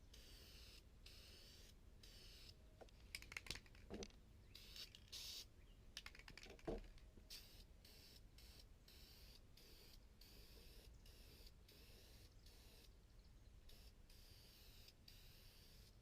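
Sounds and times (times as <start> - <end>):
aerosol spray hiss: 0.1 - 2.6, 4.6 - 5.5, 7.3 - 12.8, 13.7 - 16.0
spray can clicks and rattling: 2.8 - 11.9.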